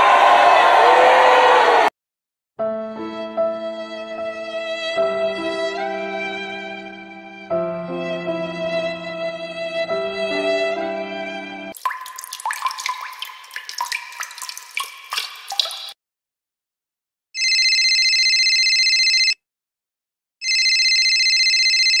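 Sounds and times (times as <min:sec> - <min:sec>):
water dripping: 0:11.8 - 0:16.0
telephone ringing: 0:17.4 - 0:19.4, 0:20.4 - 0:22.0.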